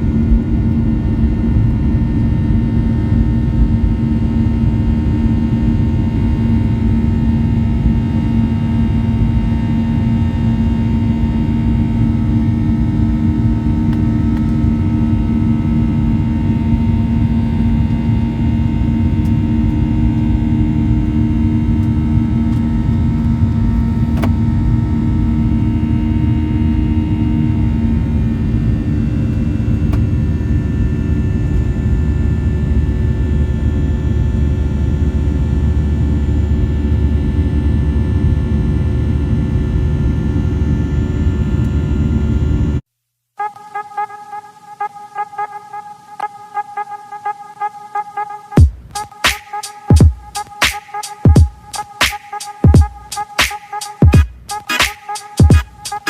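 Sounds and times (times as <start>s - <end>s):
constant low hum: 0.0s - 42.8s, 44.8s - 56.0s
jet engine rumble and rushing air: 0.0s - 42.8s.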